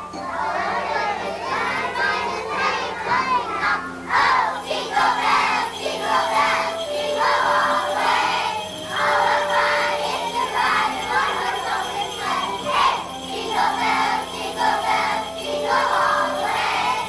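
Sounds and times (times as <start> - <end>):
music with long held note: 0.0 - 17.0
jingle bells shaken: 4.2 - 17.0.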